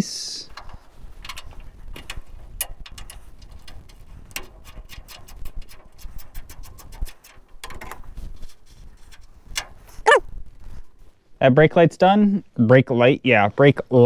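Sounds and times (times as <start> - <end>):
wrench clicking on metal: 0.5 - 10.0.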